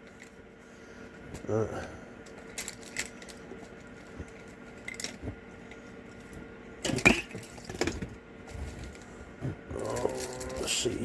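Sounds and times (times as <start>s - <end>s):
plastic toy parts clattering: 2.3s - 3.4s, 9.8s - 11.0s
plastic toy parts clicking: 9.9s - 10.8s.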